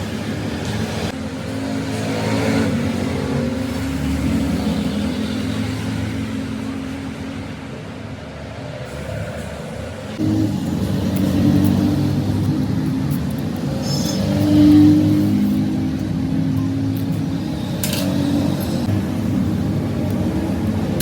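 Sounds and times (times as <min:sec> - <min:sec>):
engine running: 0:09.4 - 0:21.0.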